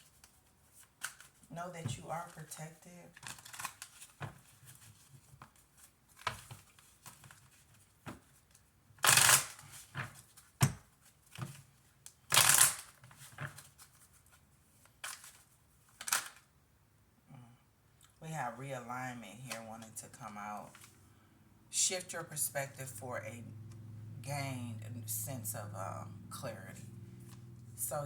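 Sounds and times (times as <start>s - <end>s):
cards riffling: 0.2s - 1.4s, 12.3s - 14.0s, 14.8s - 16.5s.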